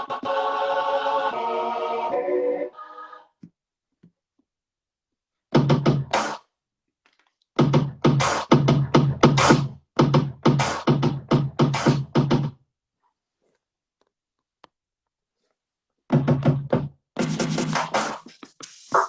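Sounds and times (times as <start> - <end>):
stuttering drum-machine beat: 5.6 - 6.4, 7.6 - 12.6, 16.1 - 19.0
electronic music: 17.2 - 19.0.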